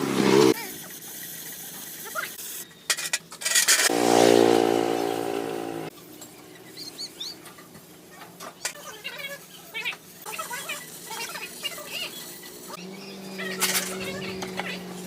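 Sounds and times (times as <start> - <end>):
car engine running: 3.9 - 5.9.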